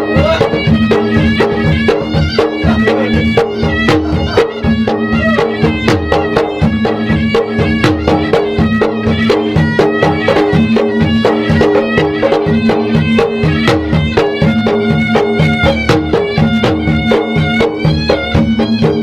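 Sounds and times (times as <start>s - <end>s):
drums beaten in fast rhythm: 0.0s - 19.0s
reedy wind instrument melody: 0.0s - 19.0s.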